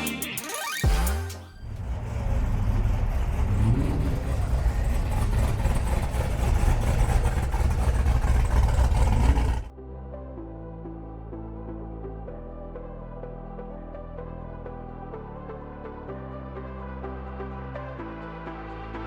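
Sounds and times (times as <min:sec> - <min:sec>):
music: 0:00.0 - 0:01.7, 0:09.7 - 0:19.0
car engine rumbling: 0:01.6 - 0:09.7.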